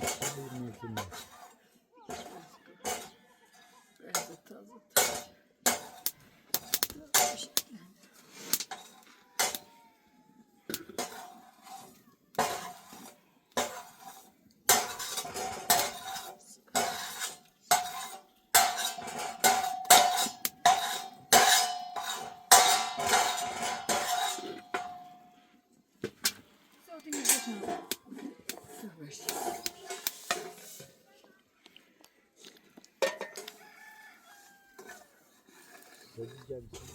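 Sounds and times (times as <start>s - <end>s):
metal utensil scraping metal pot: 0.0s - 9.7s, 10.7s - 25.5s, 27.0s - 31.0s, 33.0s - 36.9s
pot ringing: 17.7s - 25.2s.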